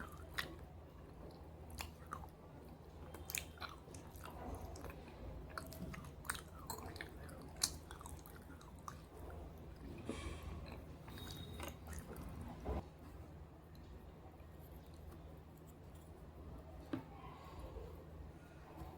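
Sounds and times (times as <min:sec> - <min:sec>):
person chewing and crunching: 0:00.0 - 0:12.6.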